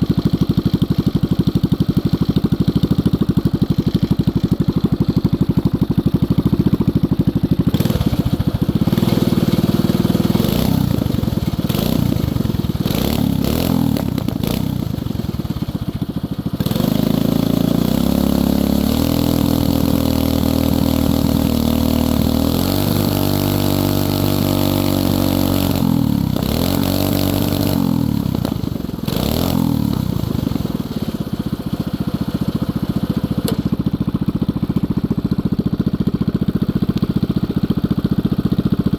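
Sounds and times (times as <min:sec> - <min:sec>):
minibike engine revving: 0:00.0 - 0:38.9.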